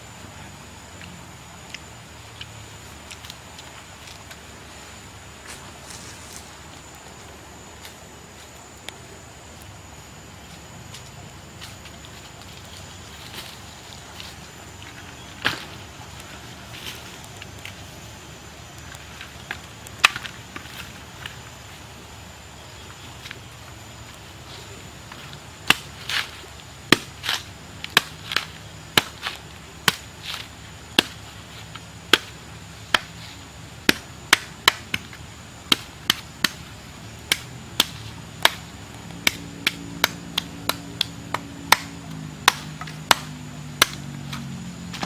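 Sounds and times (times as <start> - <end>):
blade chopping: 26.9 - 31.2, 35.7 - 44.1.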